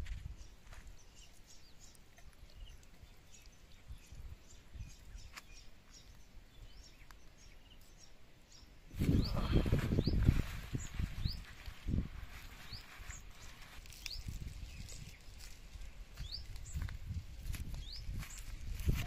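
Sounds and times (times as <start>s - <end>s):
faint outdoor noise: 0.0s - 19.0s
small birds chirping: 0.0s - 19.0s
rustling handling noise: 9.0s - 16.0s.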